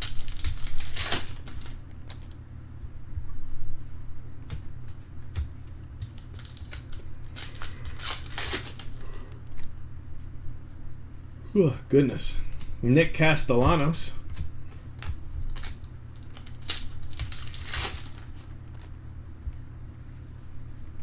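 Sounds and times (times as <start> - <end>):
wrapper rustles: 0.0 - 2.3, 6.2 - 9.8, 15.5 - 19.0
trading cards and wrappers handled: 0.0 - 2.4, 5.4 - 9.8, 14.7 - 19.1
steady low hum: 0.0 - 21.0.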